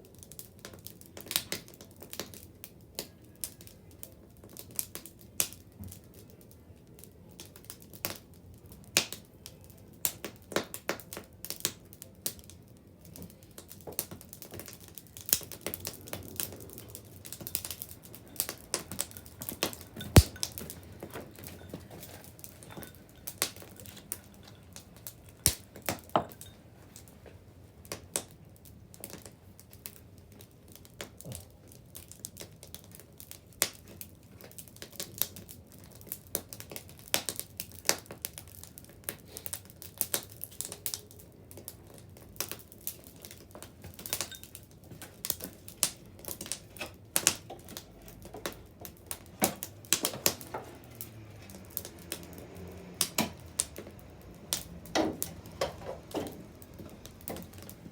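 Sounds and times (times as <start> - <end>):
bonfire crackling and popping: 0.0 - 57.9.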